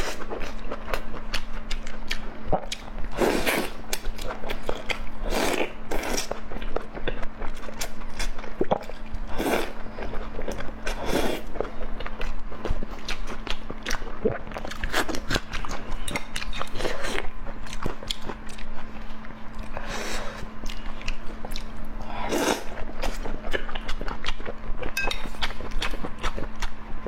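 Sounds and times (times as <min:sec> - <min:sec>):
person chewing and biting: 0:00.0 - 0:19.8, 0:20.6 - 0:26.8.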